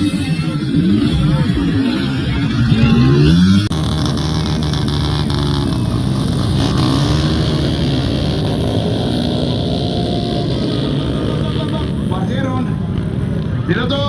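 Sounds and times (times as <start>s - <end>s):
motocross engines revving: 0.0s - 14.0s.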